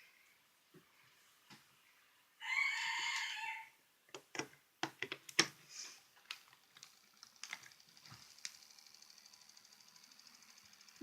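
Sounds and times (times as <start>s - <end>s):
small fan motor whirring: 6.3s - 11.0s.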